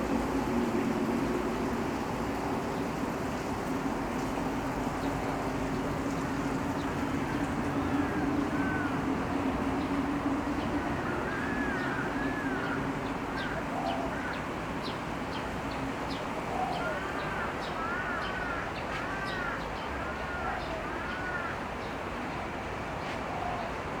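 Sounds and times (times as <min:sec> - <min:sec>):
street background noise: 0:00.0 - 0:24.0.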